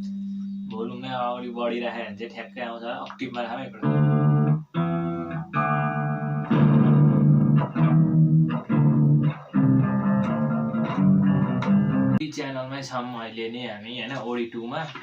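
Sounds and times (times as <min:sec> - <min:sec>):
overdriven electric guitar chords: 0:03.1 - 0:12.2.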